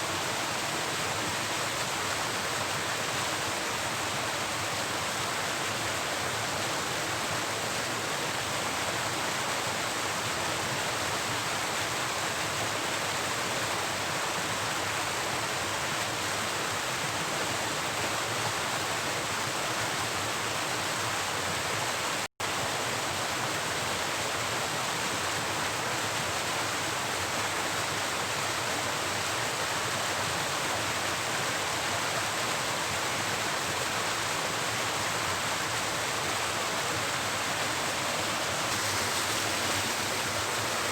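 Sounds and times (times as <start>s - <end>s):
river water rushing: 21.8s - 40.9s.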